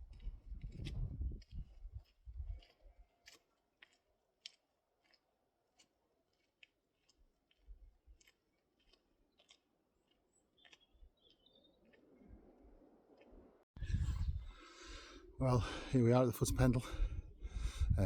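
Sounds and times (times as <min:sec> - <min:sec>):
footsteps crunching on a path: 0:00.0 - 0:12.3
bird chirping: 0:09.3 - 0:12.4.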